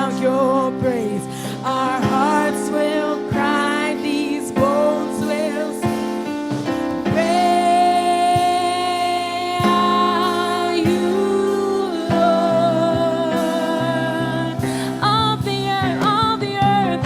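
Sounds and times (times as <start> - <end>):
gospel singing over a band: 0.0 - 17.0
drum hits: 4.6 - 17.0.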